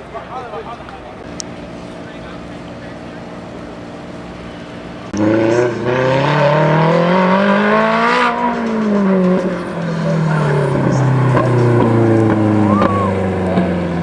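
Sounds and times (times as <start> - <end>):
propeller airplane engine: 1.0 - 5.2, 9.5 - 14.0.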